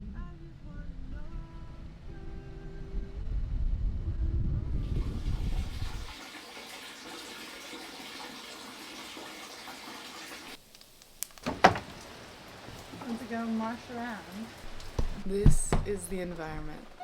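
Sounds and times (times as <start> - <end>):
low rumble: 0.0 - 6.1
rain falling: 9.4 - 17.0.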